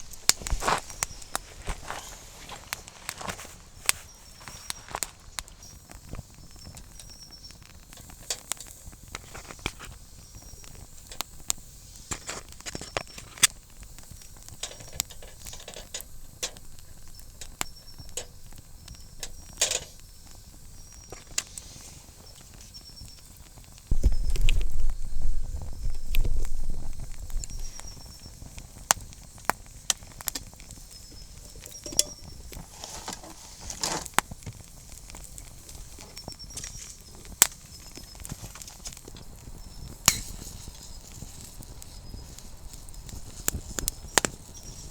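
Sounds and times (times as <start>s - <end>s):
campfire crackling and popping: 0.0s - 44.9s
faint high chirps: 3.9s - 7.7s, 22.2s - 28.6s, 30.7s - 32.5s
low rumble: 23.9s - 28.2s.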